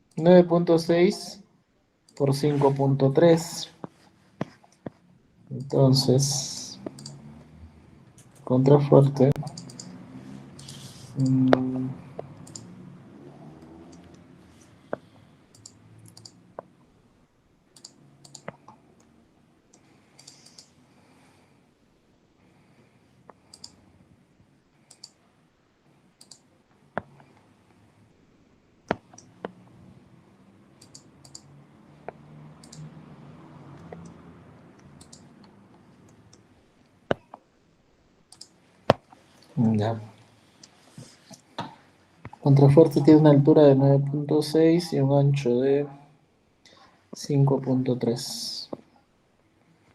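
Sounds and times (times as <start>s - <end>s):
mouse and keyboard clicks: 6.8s - 7.2s, 9.3s - 10.0s, 10.6s - 12.7s, 14.9s - 16.7s, 17.8s - 18.8s, 19.7s - 20.7s, 23.5s - 23.8s, 24.9s - 25.2s, 30.8s - 31.5s, 32.1s - 32.9s, 35.0s - 35.5s.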